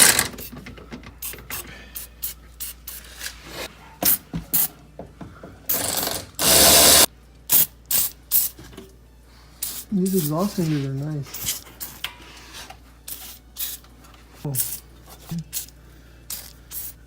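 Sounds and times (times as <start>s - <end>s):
ratchet wrench clicking: 5.7s - 8.1s
aerosol spray bursts: 9.6s - 10.6s, 14.6s - 14.9s, 16.3s - 17.0s.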